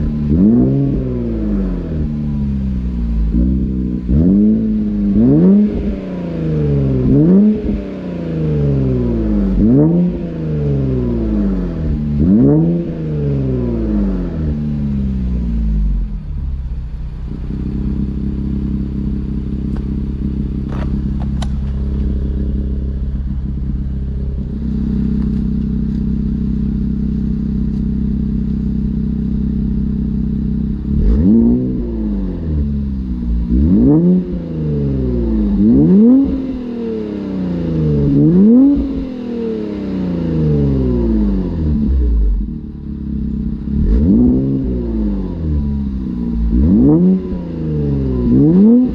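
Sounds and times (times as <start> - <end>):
car engine idling and revving: 0.0 - 48.9.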